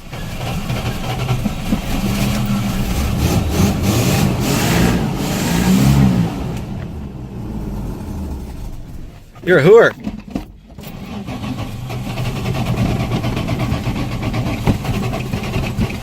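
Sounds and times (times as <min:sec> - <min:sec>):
pickup engine revving: 0:00.0 - 0:10.1, 0:10.7 - 0:16.0.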